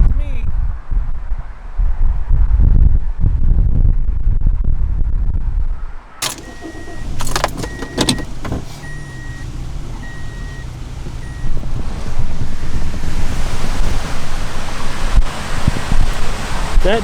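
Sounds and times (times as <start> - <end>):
car door and keys clicking: 6.2 - 11.7
car warning chime beeping: 6.2 - 13.8.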